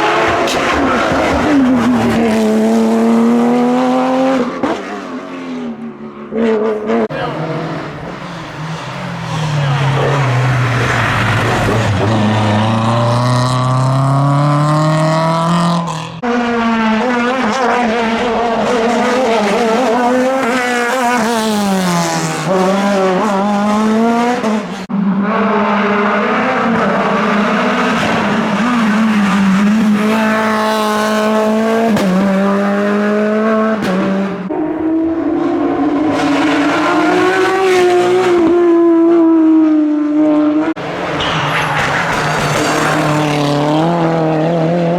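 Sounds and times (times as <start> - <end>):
rally car engines revving: 0.0 - 44.9.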